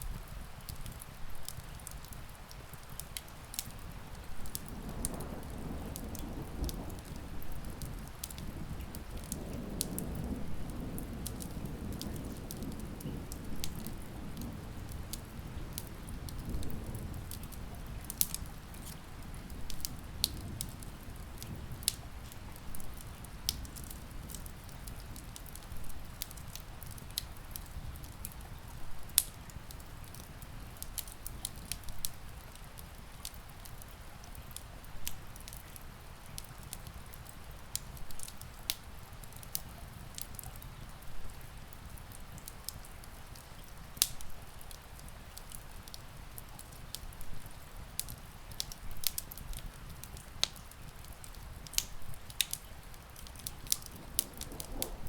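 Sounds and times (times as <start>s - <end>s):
steady rain: 0.0s - 55.0s
wood fire crackling: 0.0s - 55.0s
distant thunder rumble: 4.6s - 25.1s, 53.7s - 55.0s.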